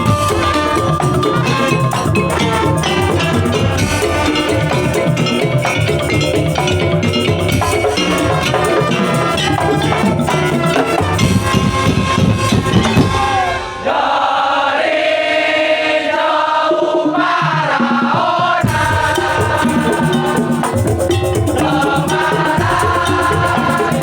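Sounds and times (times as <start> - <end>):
tuned metal percussion ringing: 0.0 - 11.8, 18.6 - 24.0
drums playing fast rhythm: 0.0 - 13.8, 17.4 - 24.0.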